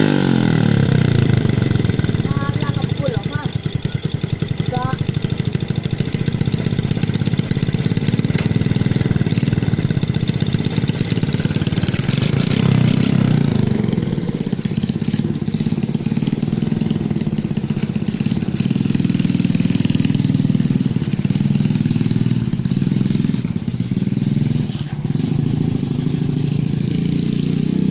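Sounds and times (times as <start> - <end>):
motorcycle engine revving: 0.0 - 27.9
exhaust pops: 6.4 - 13.6.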